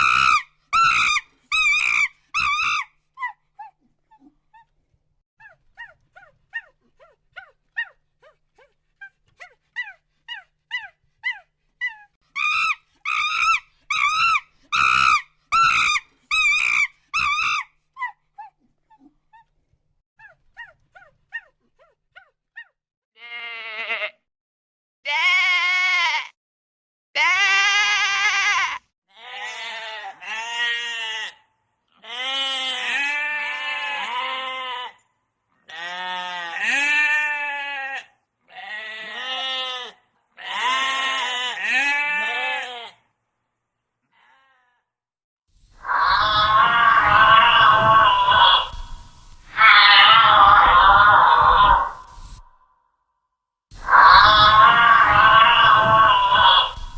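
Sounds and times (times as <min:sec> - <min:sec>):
goat bleating: 0:23.2 - 0:24.2, 0:25.1 - 0:26.3, 0:27.2 - 0:31.4, 0:32.0 - 0:35.0, 0:35.7 - 0:43.0, 0:46.2 - 0:48.9, 0:49.5 - 0:52.2
loud quavering calls: 0:45.8 - 0:52.6, 0:53.8 - 0:56.9.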